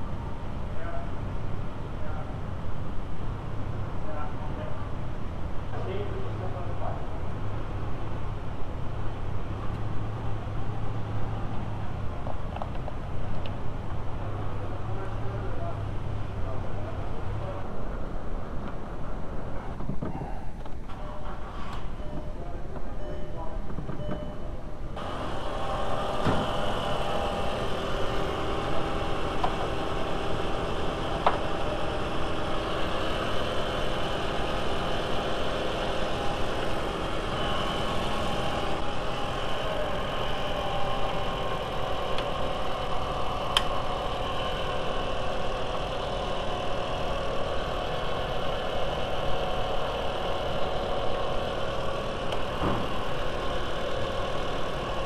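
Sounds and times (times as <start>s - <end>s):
car engine idling: 25.0s - 55.0s.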